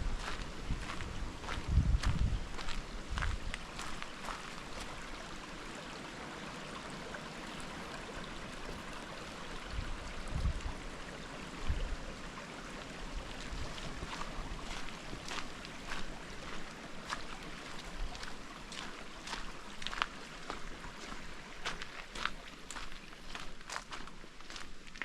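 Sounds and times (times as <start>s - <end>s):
footsteps on track: 0.2s - 4.9s, 13.4s - 25.0s.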